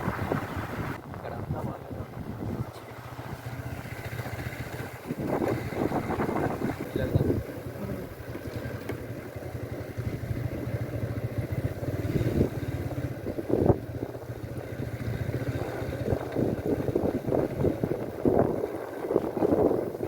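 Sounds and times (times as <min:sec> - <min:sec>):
wind on microphone: 0:00.0 - 0:03.7, 0:04.4 - 0:08.1, 0:12.0 - 0:14.4, 0:15.1 - 0:20.0
engine running: 0:00.0 - 0:20.0.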